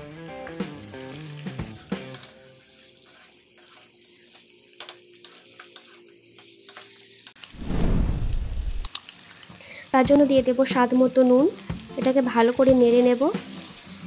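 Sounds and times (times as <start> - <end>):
chicken sizzling in hot oil: 0.0 - 7.6, 8.7 - 14.0
spatula stirring: 2.7 - 6.0
loud rushing noise: 7.6 - 8.9.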